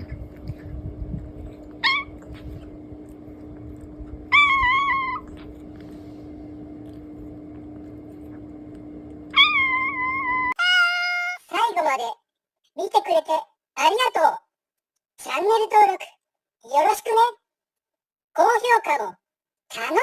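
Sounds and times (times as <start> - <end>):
steady low hum: 0.0 - 10.6
cat meowing: 4.3 - 5.4, 9.3 - 11.4.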